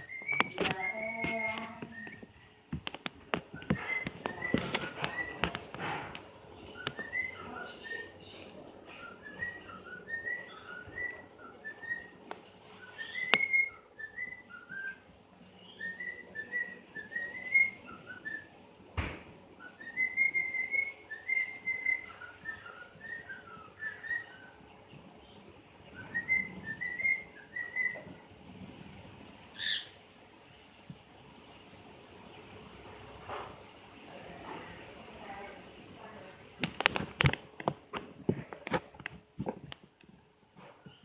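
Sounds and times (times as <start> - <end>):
bird whistling song: 0.0 - 2.4, 3.5 - 5.6, 6.6 - 18.6, 19.6 - 28.2, 29.5 - 30.0.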